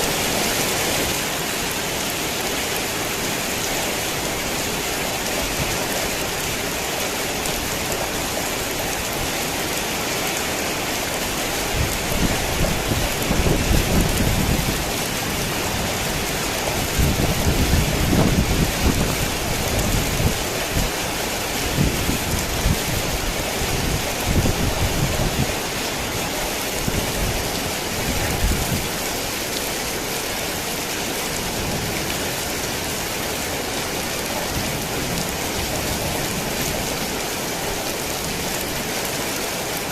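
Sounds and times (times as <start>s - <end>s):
heavy rain falling: 0.0s - 39.9s
low rolling thunder: 11.8s - 20.9s.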